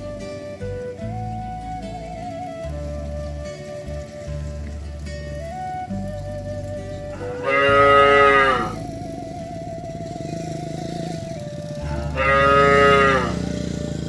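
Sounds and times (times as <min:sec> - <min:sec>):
cow mooing: 0:07.1 - 0:09.0, 0:10.1 - 0:14.0.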